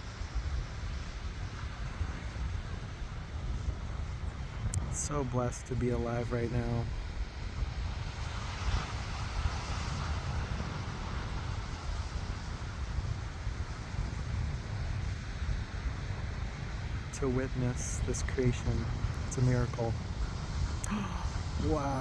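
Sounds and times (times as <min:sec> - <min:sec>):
wind buffeting microphone: 0:00.0 - 0:17.7
ocean surf rushing: 0:16.8 - 0:20.0.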